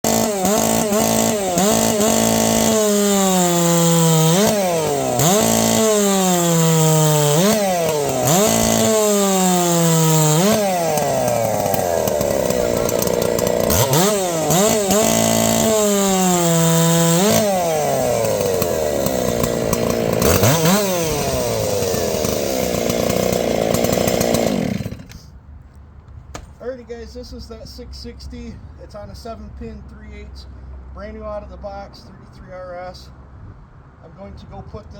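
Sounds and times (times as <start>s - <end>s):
chainsaw cutting wood: 0.0s - 25.3s.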